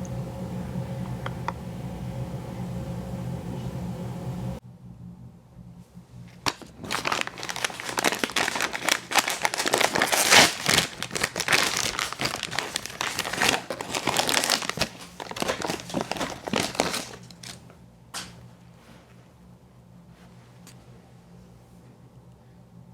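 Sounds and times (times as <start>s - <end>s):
food wrapper crinkling: 6.4s - 17.6s.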